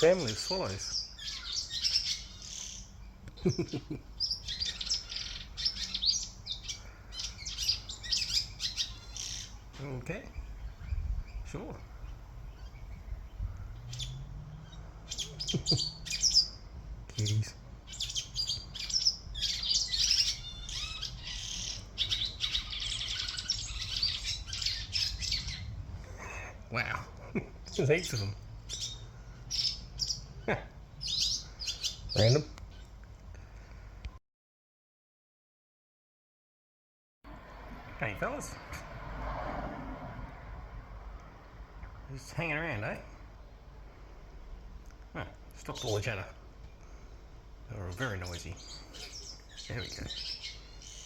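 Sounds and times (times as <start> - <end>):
swallows twittering and chirping: 0.0 - 33.0, 42.1 - 43.4, 45.2 - 51.0.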